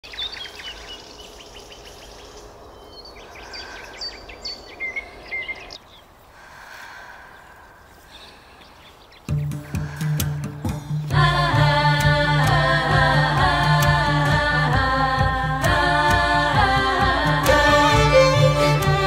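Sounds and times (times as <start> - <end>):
birds singing: 0.0 - 6.4, 7.2 - 11.1
steady outdoor hiss: 0.0 - 19.0.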